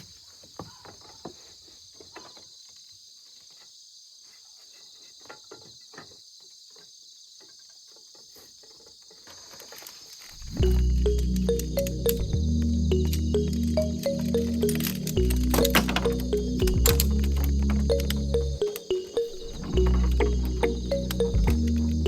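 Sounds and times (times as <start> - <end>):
insects singing: 10.6 - 22.0.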